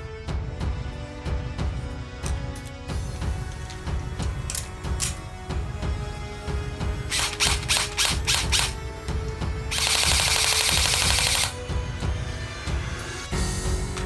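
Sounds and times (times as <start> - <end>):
background music: 0.0 - 14.0
automatic gunfire burst: 7.1 - 8.8, 9.7 - 11.6
gunshots: 7.1 - 8.9, 9.7 - 11.7.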